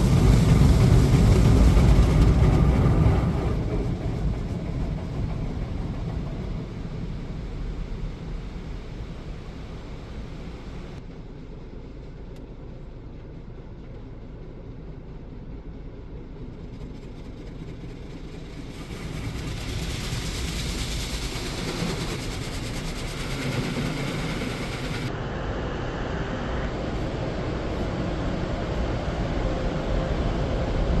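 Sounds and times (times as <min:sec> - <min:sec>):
loud rushing hiss: 0:00.0 - 0:11.0, 0:18.4 - 0:29.1
car wash machinery rumbling: 0:00.0 - 0:31.0.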